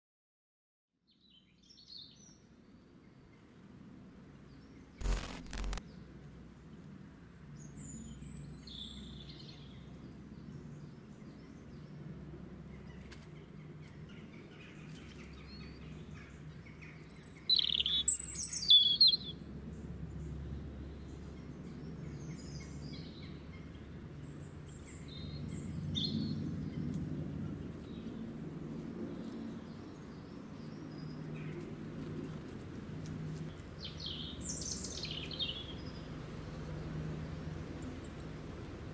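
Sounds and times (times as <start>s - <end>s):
sharp clicks: 5.0s - 5.8s
birds chirping: 15.1s - 19.4s.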